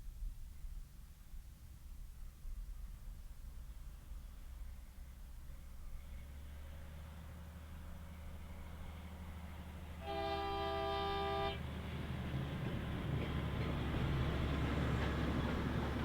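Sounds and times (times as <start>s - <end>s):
locomotive engine rumble: 3.0s - 16.0s
locomotive horn: 10.0s - 11.8s.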